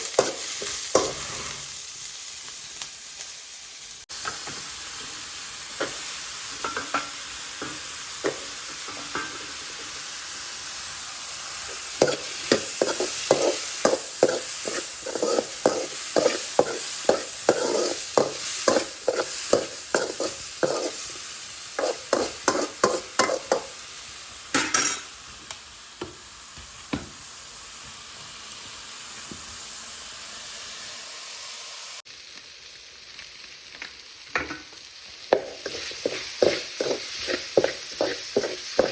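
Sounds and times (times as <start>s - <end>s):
food sizzling in a pan: 0.0s - 38.9s
spoon stirring and scraping: 12.0s - 21.1s, 21.8s - 23.7s, 35.4s - 38.9s.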